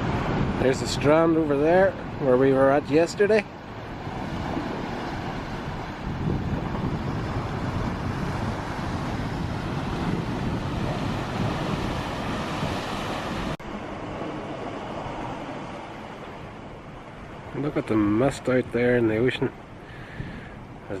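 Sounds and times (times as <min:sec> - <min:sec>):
sea surf washing: 0:00.0 - 0:21.0
wind buffeting microphone: 0:00.0 - 0:21.0.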